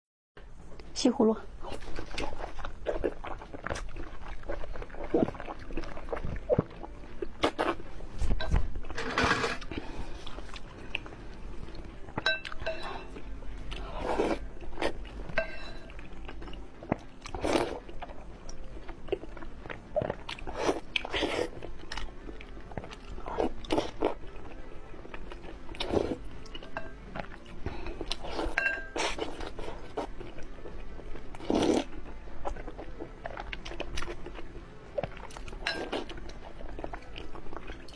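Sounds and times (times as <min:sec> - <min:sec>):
person chewing noodles: 0:01.6 - 0:07.9, 0:09.6 - 0:37.9.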